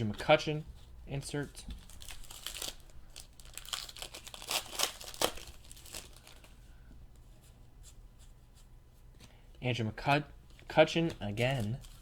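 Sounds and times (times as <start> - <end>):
wrapper crinkling and rustling: 1.8 - 6.6, 11.2 - 12.0.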